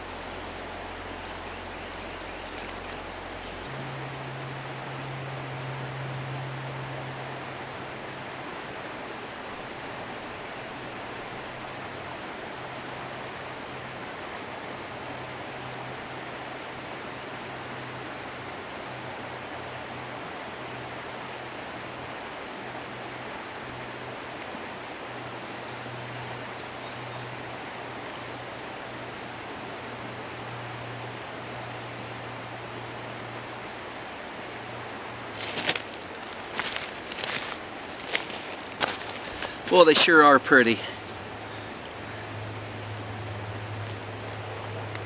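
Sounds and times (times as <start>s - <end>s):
low hum: 0.0s - 8.8s
river water rushing: 0.0s - 45.0s.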